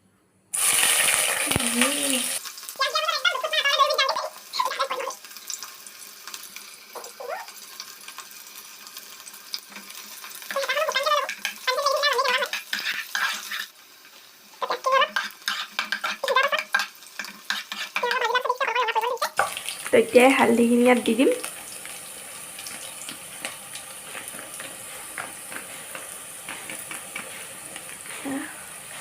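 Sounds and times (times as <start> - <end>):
onions sizzling in hot oil: 0.5 - 29.0
person talking: 1.4 - 5.2, 18.0 - 21.4, 28.1 - 28.6
spoon stirring: 10.5 - 13.7, 14.6 - 19.7, 22.6 - 29.0.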